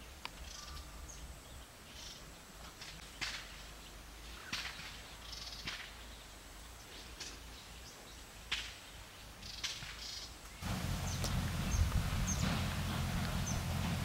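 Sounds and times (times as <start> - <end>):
faint high bird chirps: 0.4 - 2.2
sharp bird calls: 9.3 - 13.9.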